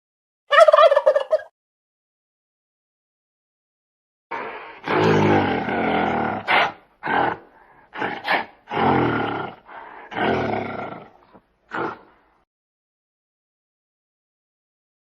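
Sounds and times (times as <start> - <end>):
large animal roaring: 4.3 - 12.2
animal grunts: 4.3 - 12.3.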